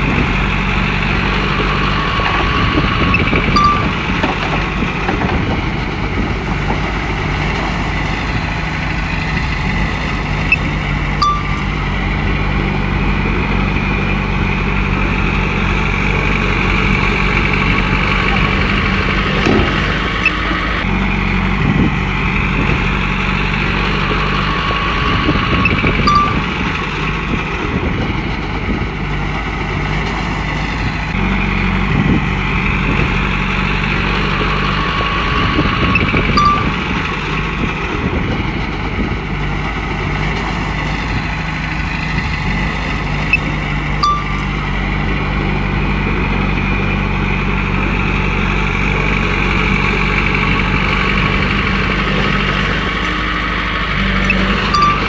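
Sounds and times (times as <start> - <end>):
bulldozer diesel engine under load: 0.0 - 55.0
bulldozer track noise: 0.0 - 55.0.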